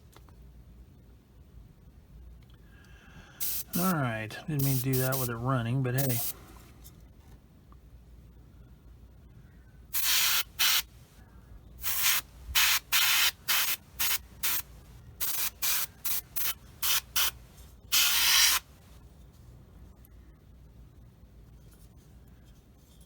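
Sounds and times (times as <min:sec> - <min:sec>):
airbrush hissing bursts: 0:03.4 - 0:05.4, 0:06.0 - 0:06.4, 0:10.0 - 0:10.9, 0:11.8 - 0:18.7.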